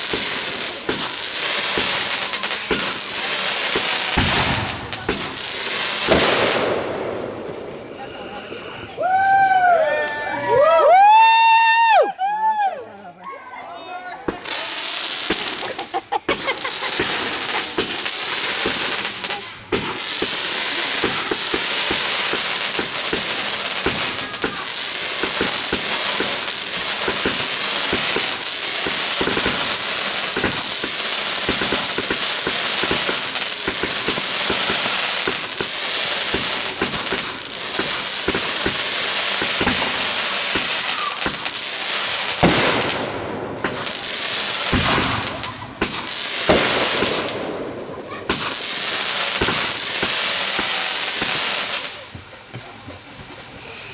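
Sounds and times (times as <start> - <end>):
fireworks popping and crackling: 0.0 - 12.0, 14.2 - 53.9
loud firework bang: 2.6 - 5.4, 6.0 - 8.4, 42.4 - 48.6, 49.3 - 50.2.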